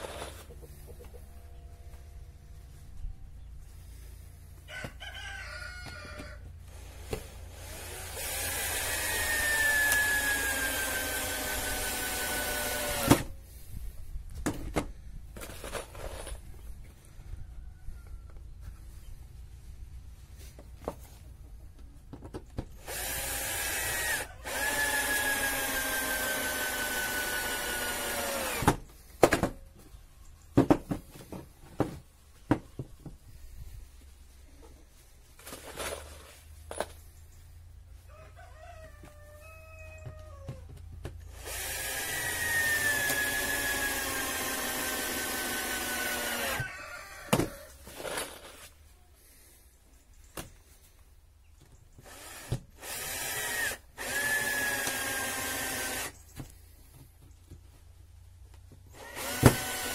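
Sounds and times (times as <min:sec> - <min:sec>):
rooster crowing: 0:04.6 - 0:06.5, 0:17.3 - 0:18.4, 0:38.0 - 0:40.7, 0:46.3 - 0:47.8
power drill running: 0:06.7 - 0:13.3, 0:22.8 - 0:28.8, 0:41.3 - 0:46.6, 0:52.0 - 0:56.2, 0:58.9 - 0:59.9
knocks and clicks of wood and tools: 0:14.3 - 0:16.4, 0:21.7 - 0:22.8, 0:28.5 - 0:29.9, 0:30.5 - 0:33.2, 0:39.9 - 0:41.3, 0:58.5 - 0:59.9.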